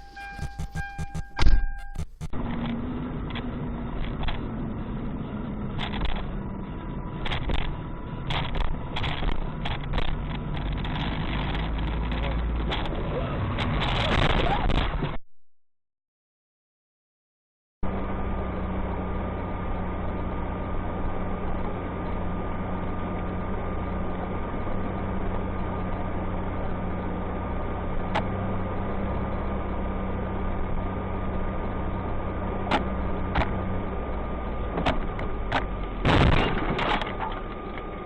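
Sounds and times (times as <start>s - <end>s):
sharp clicks: 0.0s - 2.7s
car engine and road noise: 0.0s - 15.2s, 17.8s - 38.0s.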